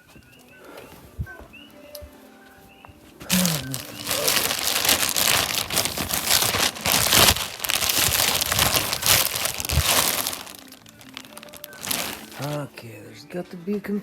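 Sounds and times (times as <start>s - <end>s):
packaging crinkling and rustling: 3.3s - 12.7s.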